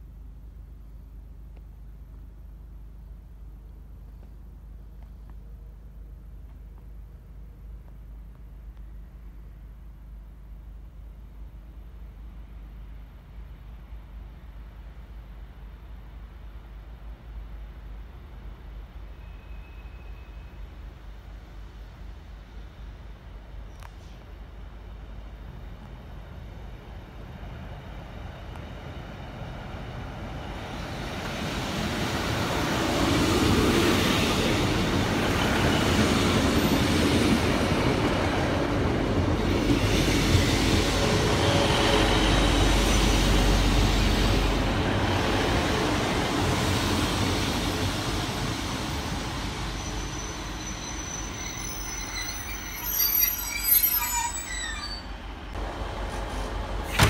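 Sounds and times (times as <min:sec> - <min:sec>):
train engine and wheel noise: 0:00.0 - 0:57.0
high-pitched brake squeals: 0:19.1 - 0:20.6, 0:49.8 - 0:55.2.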